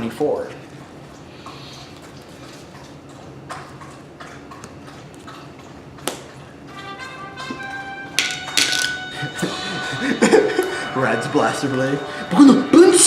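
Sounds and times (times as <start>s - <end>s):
faint background music: 6.7s - 13.0s
playing cards tapping on table: 8.2s - 9.0s.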